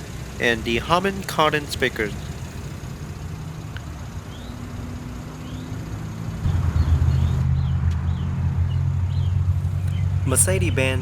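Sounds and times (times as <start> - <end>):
vehicle engine humming: 0.0 - 11.0
faint bird chirps: 4.1 - 5.9.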